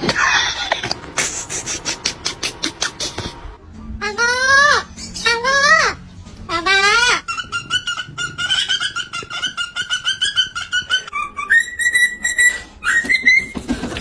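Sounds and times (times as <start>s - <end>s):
parrot chirping clucks: 0.0s - 3.4s, 4.1s - 13.6s
parrot whistled call: 6.6s - 13.6s.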